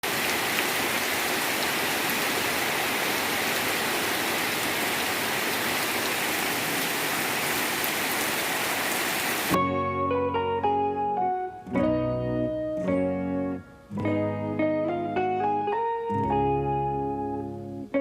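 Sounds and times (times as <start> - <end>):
heavy rain falling: 0.0 - 9.6
plucked guitar music: 9.6 - 18.0.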